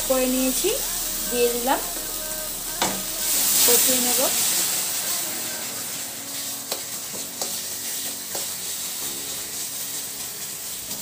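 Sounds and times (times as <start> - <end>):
paste sizzling in hot oil: 0.0 - 11.0
spatula tapping pan: 6.6 - 8.6.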